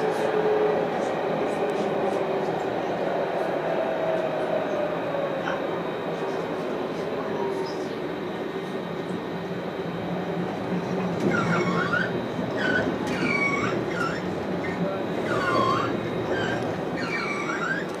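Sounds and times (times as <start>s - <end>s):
tram rumbling: 0.0s - 18.0s
tram wheels squealing: 11.2s - 18.0s.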